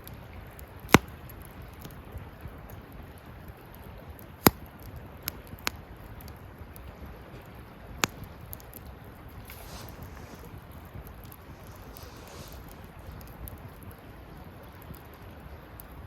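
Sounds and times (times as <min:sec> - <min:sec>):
burning wood crackling: 0:00.0 - 0:16.0
fire rushing: 0:09.4 - 0:13.6.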